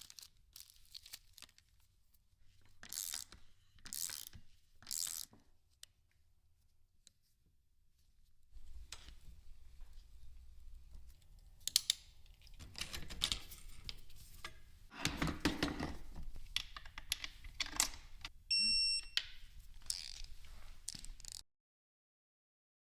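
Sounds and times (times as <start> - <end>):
short electronic beep: 18.5 - 19.2.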